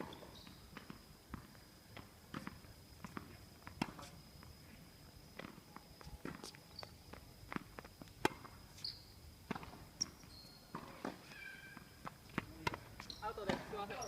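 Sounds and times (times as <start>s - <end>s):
footsteps: 0.7s - 8.9s.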